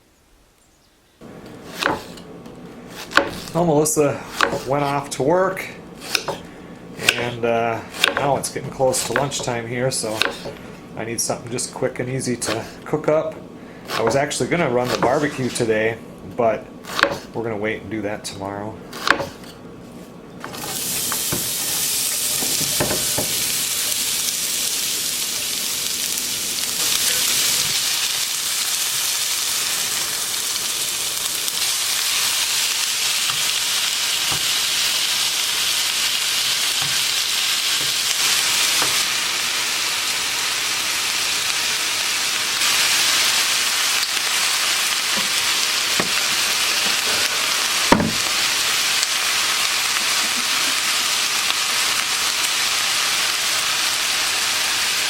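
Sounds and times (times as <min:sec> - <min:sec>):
potatoes sizzling in a pan: 0:20.6 - 0:55.0.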